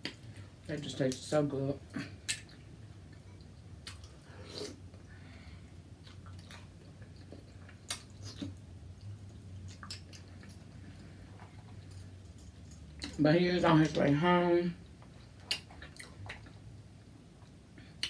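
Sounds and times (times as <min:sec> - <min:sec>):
close-up chewing: 0:06.0 - 0:13.2, 0:14.8 - 0:16.7
wet mouth smacks: 0:09.7 - 0:10.6.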